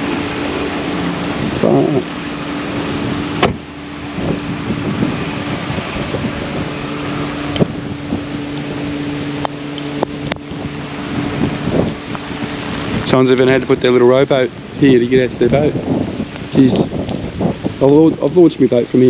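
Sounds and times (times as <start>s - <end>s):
wind noise on microphone: 0.0s - 19.0s.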